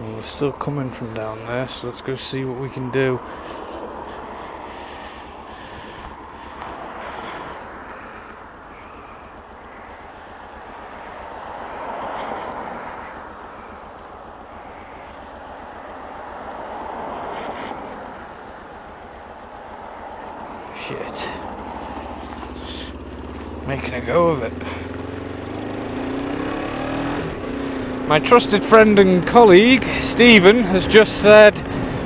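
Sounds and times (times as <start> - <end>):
road noise: 0.0 - 32.0
wind rushing over camera: 31.5 - 32.0.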